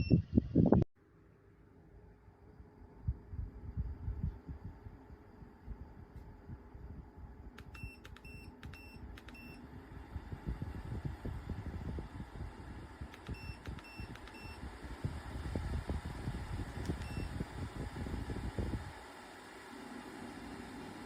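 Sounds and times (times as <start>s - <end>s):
fan air noise: 1.9s - 21.0s
fan control panel beeps: 7.6s - 9.6s, 13.1s - 14.6s, 16.8s - 17.4s.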